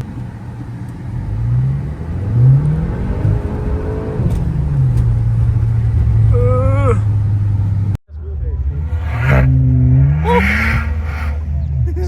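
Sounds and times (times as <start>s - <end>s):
car engine revving: 8.6s - 11.8s.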